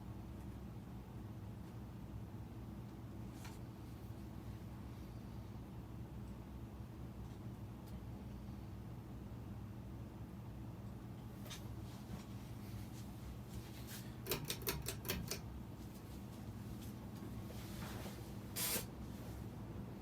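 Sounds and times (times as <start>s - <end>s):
ceiling fan motor humming: 0.0s - 20.0s.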